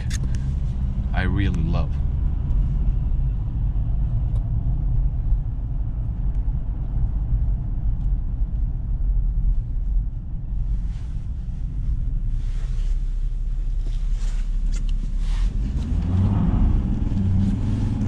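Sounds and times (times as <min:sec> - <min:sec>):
pickup truck engine rumble: 0:00.0 - 0:18.0
road noise: 0:00.0 - 0:18.0.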